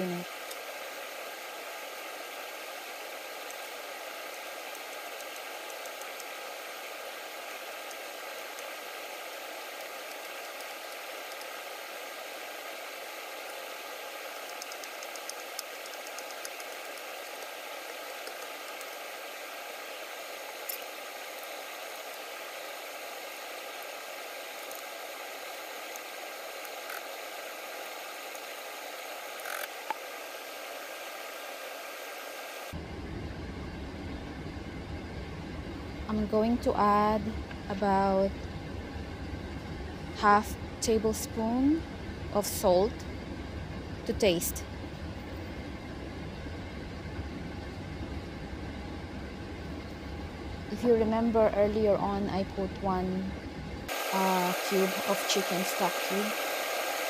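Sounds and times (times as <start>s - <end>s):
food sizzling in a pan: 53.9s - 57.0s.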